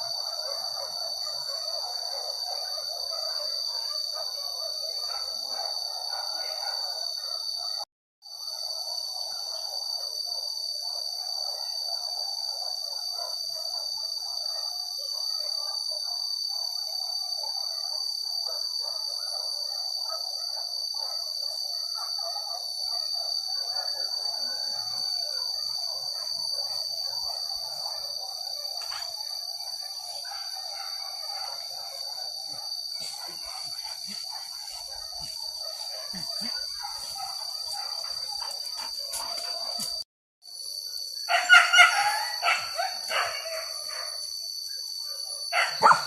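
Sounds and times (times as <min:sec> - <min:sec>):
high-pitched insect drone: 0:19.3 - 0:46.0.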